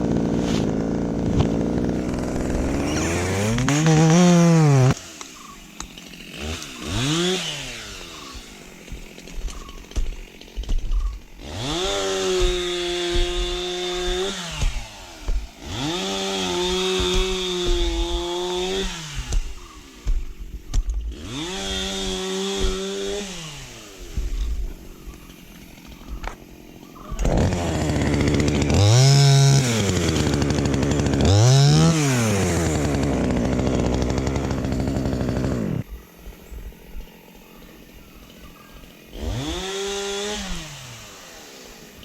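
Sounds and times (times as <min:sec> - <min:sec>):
chainsaw revving: 0:00.0 - 0:20.3, 0:21.0 - 0:35.9, 0:39.1 - 0:42.0.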